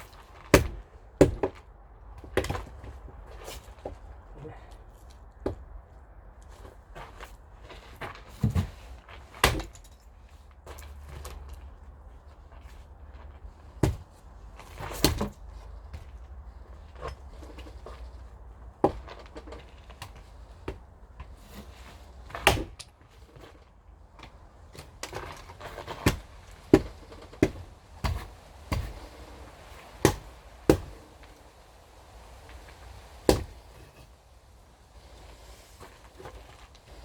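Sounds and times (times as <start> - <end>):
axe splitting firewood: 0.0 - 4.8, 8.1 - 9.9, 13.6 - 16.2, 18.7 - 23.6, 24.2 - 31.6, 32.2 - 34.2.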